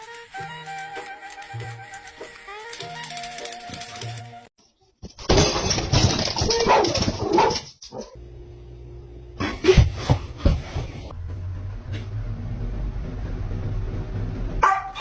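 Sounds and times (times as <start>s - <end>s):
clattering: 5.2s - 8.1s.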